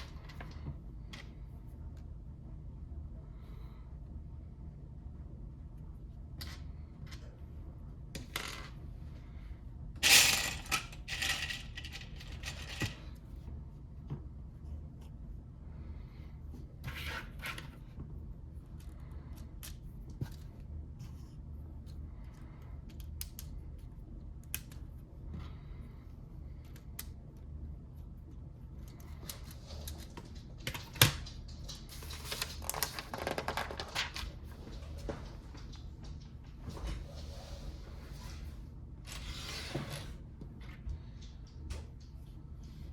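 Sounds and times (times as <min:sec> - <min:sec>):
plastic pieces clicking and rattling: 0:10.0 - 0:13.0.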